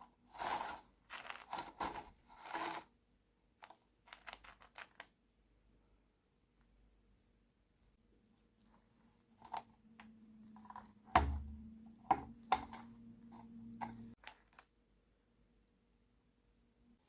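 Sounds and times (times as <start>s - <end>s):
plastic toy pieces clicking: 3.6s - 5.1s.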